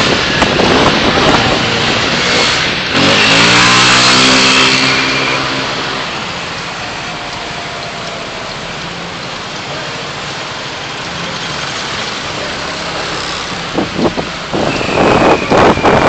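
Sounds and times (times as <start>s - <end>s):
car driving in traffic: 0.0s - 16.0s
rough bursts of noise: 0.0s - 16.0s.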